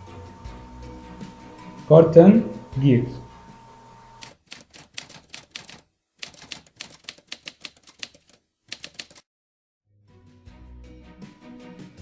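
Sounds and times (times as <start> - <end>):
music: 0.0 - 4.0, 9.9 - 12.0
typewriter keys clacking: 4.2 - 9.2.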